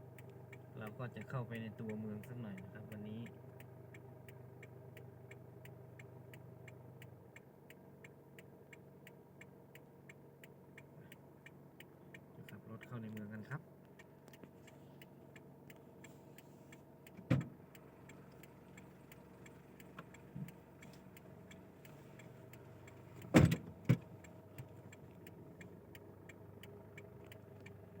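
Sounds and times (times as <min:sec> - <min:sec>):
car engine running: 0:00.0 - 0:28.0
indicator ticking: 0:16.7 - 0:23.0
thump: 0:17.2 - 0:17.5, 0:23.3 - 0:24.0.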